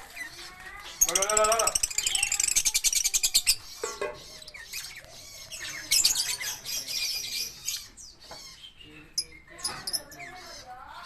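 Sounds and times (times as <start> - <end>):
lovebirds squawking and chirping: 0.0 - 11.0.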